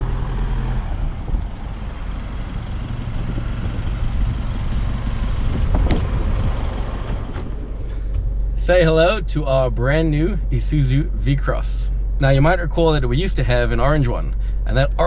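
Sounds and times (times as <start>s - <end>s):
pickup engine and road rumble: 0.0s - 15.0s.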